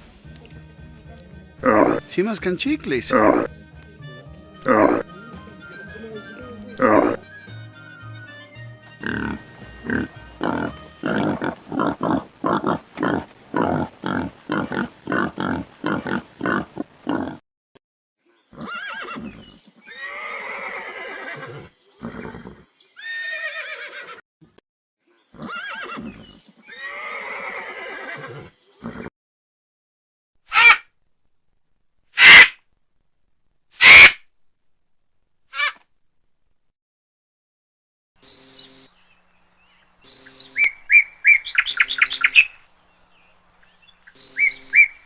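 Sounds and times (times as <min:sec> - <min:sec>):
horse whinnying: 0:04.6 - 0:07.3, 0:09.0 - 0:13.8, 0:18.6 - 0:24.2, 0:25.4 - 0:29.1.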